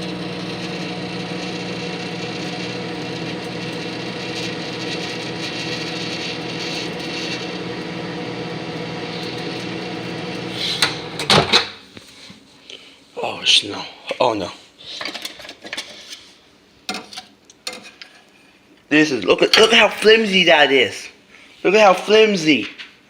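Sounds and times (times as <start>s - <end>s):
microwave oven humming: 0.0s - 11.7s.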